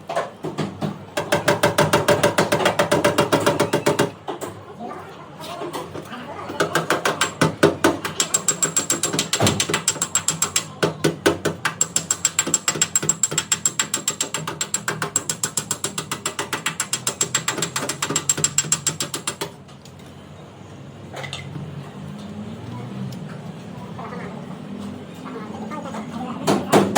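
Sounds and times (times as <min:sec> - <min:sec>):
fast metallic clicking of hand tool: 0:01.2 - 0:04.2, 0:06.6 - 0:19.6.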